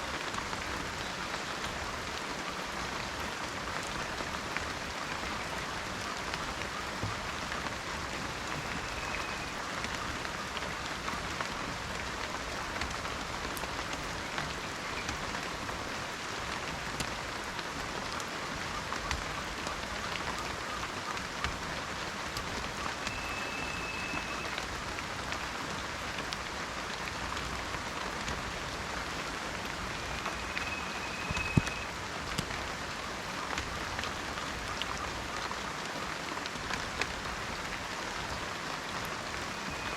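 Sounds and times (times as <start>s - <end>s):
rain falling in a forest: 0.0s - 39.9s
high whistled notes: 30.0s - 31.9s.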